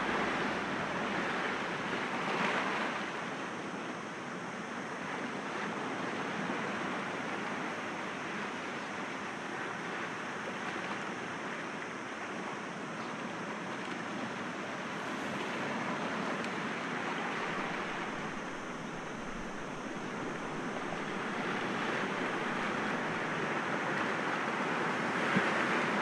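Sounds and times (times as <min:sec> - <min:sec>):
sea waves breaking against rocks: 0:13.8 - 0:26.0.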